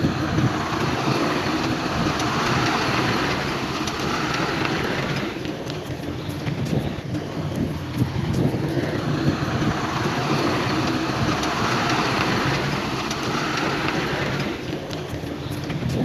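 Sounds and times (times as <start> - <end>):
diesel earthmoving machinery rumbling: 0.0 - 16.0.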